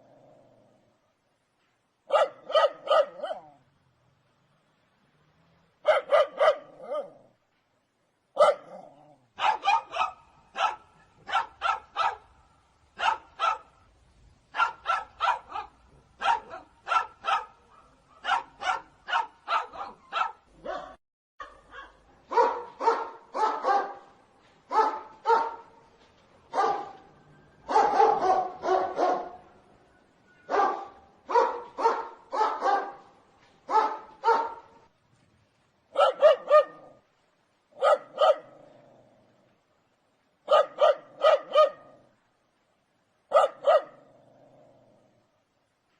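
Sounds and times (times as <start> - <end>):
dogs barking: 2.1 - 3.6, 5.8 - 7.2, 8.4 - 8.8, 9.4 - 12.4, 13.0 - 13.8, 14.6 - 24.1, 24.7 - 25.7, 26.5 - 27.0, 27.7 - 29.4, 30.5 - 33.1, 33.7 - 34.8, 35.9 - 37.0, 37.8 - 38.6, 40.5 - 42.0, 43.3 - 44.0.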